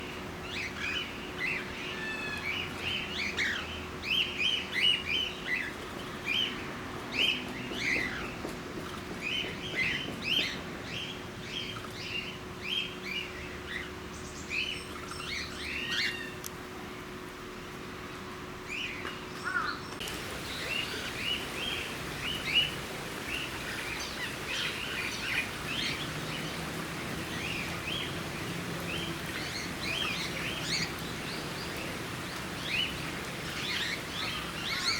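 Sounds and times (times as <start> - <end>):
faint steady hum: 9.7 - 34.9.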